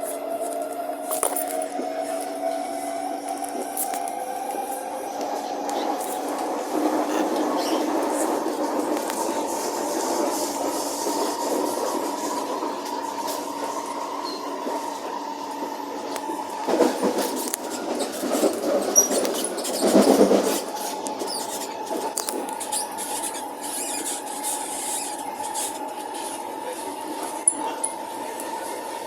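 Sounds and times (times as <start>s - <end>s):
train running noise with whine: 0.0s - 29.0s
faint high squeaks: 22.5s - 26.4s.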